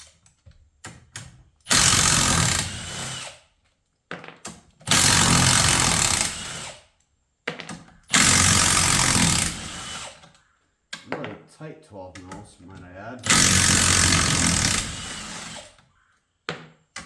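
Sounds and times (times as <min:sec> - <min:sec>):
impact wrench hammering: 0:13.2 - 0:15.5.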